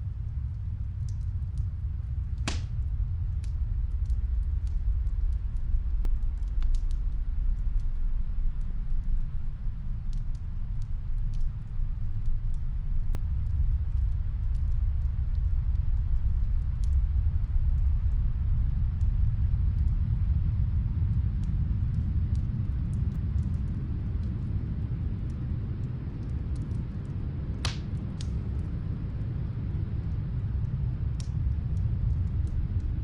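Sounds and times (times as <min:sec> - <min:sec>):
muffled wood fire crackles: 0:00.0 - 0:33.0
snowstorm wind rumbling: 0:00.0 - 0:33.0.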